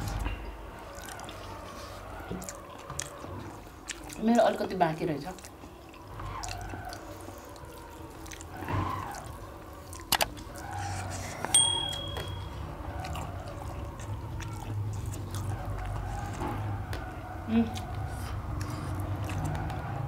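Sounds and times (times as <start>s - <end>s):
wet chewing and mouth clicks: 0.8s - 20.0s
short high ding: 11.5s - 12.6s.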